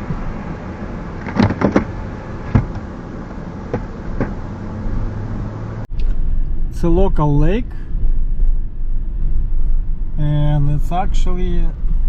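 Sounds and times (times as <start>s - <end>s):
car engine humming inside cabin: 0.0s - 12.0s.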